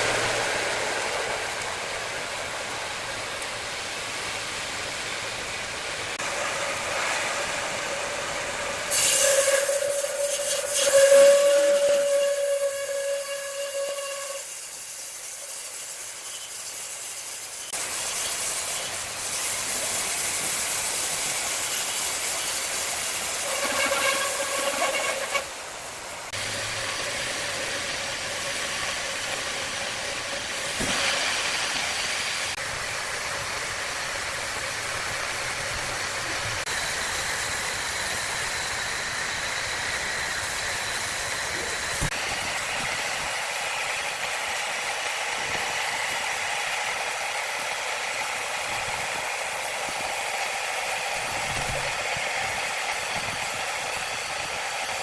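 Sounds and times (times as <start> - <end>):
saw blade whine: 7.6 - 47.6
sawmill saw cutting log: 8.8 - 32.6.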